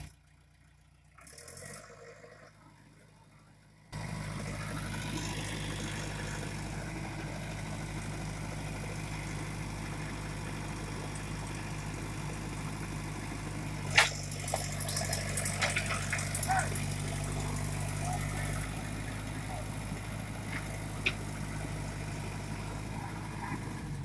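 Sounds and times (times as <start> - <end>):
diesel digger engine idling: 0.0 - 24.0
clattering: 13.9 - 17.2.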